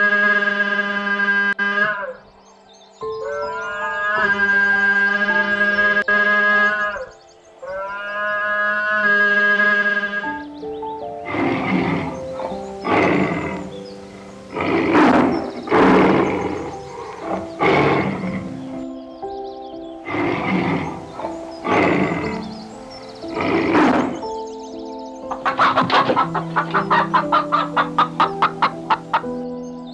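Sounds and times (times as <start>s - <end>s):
background music with stepped melody: 9.7s - 29.9s
animal giving harsh calls: 11.2s - 18.8s, 20.0s - 24.3s, 25.3s - 29.3s.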